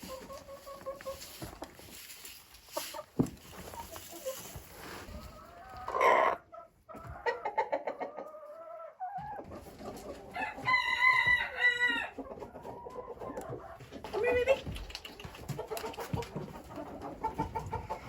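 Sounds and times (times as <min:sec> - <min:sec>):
chickens clucking: 0:00.0 - 0:18.0
chicken squawk: 0:05.4 - 0:09.4.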